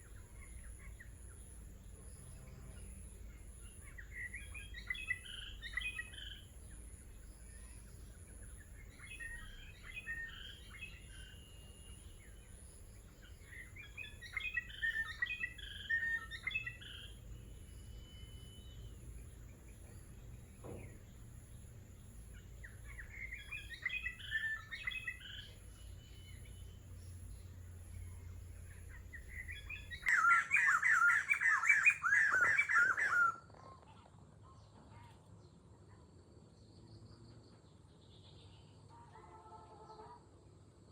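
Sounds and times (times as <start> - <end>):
songbird twittering: 0.0 - 33.5
loud rapid bird chirping: 2.2 - 33.4.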